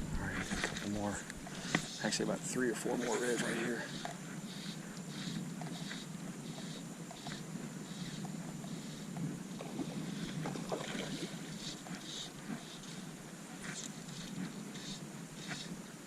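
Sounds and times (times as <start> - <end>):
water lapping against boat hull: 5.6 - 14.8.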